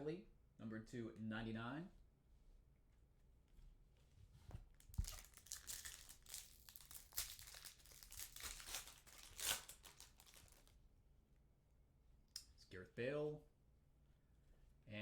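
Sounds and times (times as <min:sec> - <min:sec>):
wrapper tearing and crinkling: 0:04.8 - 0:10.7.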